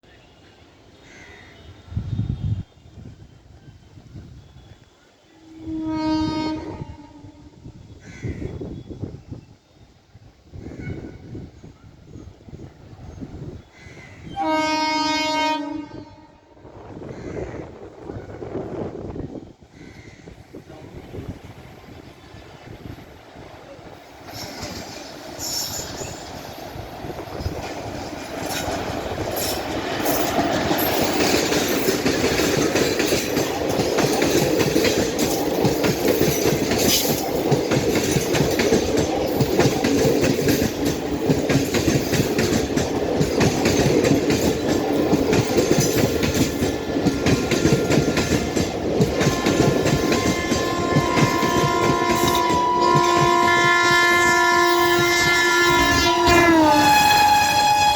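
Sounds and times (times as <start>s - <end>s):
train horn: 4.4s - 8.0s, 14.2s - 16.7s, 49.2s - 57.9s
train wheels clattering over rails: 20.3s - 57.9s.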